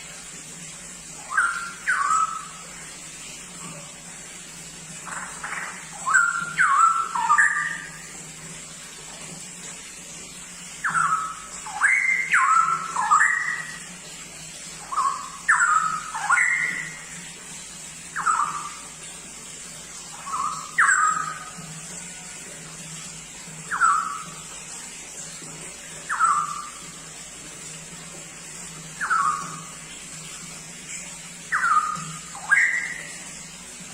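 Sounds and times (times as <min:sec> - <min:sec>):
faint steady hum: 0:00.0 - 0:33.9
bulbul whistled song: 0:01.2 - 0:02.6, 0:05.5 - 0:08.0, 0:10.8 - 0:13.8, 0:14.8 - 0:17.0, 0:18.2 - 0:18.8, 0:20.1 - 0:21.6, 0:23.7 - 0:24.4, 0:26.0 - 0:26.8, 0:29.0 - 0:29.7, 0:31.5 - 0:33.2.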